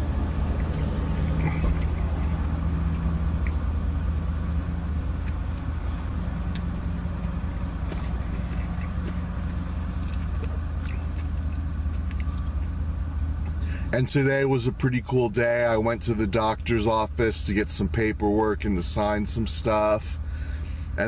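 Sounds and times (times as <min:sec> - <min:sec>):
low hum inside car cabin: 0:00.0 - 0:21.0
man chewing food: 0:00.1 - 0:13.7.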